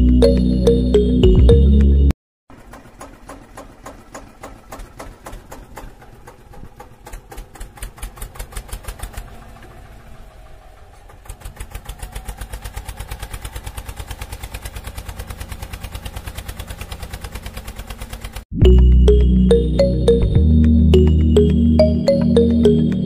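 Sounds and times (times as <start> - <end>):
tractor engine chugging: 2.5 - 18.4.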